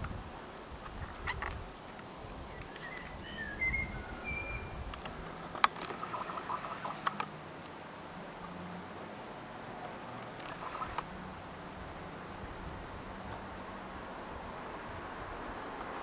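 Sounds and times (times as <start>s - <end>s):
bird chirping: 2.5s - 4.9s, 5.8s - 7.2s.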